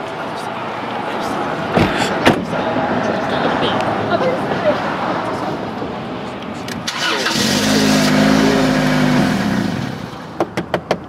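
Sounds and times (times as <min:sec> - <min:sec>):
car engine starting: 0:06.6 - 0:10.4.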